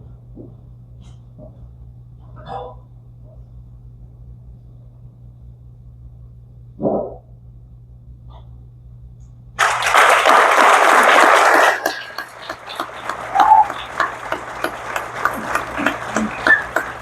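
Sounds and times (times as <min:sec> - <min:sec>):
audience applause: 0:09.6 - 0:17.0.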